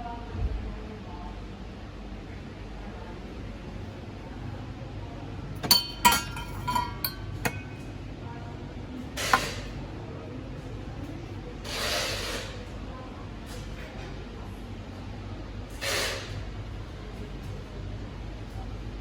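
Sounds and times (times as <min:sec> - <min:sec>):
glassware clinking: 0:05.6 - 0:07.9.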